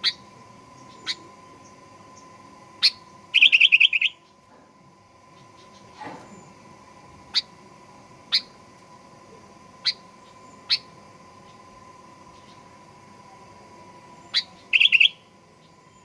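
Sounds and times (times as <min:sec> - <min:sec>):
bird chip calls: 0:00.0 - 0:00.2, 0:00.8 - 0:01.3, 0:02.8 - 0:04.3, 0:08.3 - 0:08.5, 0:09.8 - 0:11.6, 0:14.2 - 0:16.0
faint high hum: 0:00.0 - 0:16.0.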